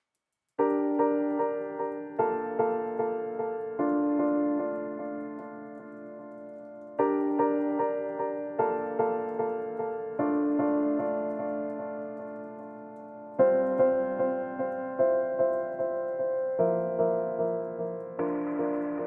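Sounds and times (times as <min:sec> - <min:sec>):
soft piano music: 0:00.6 - 0:19.0.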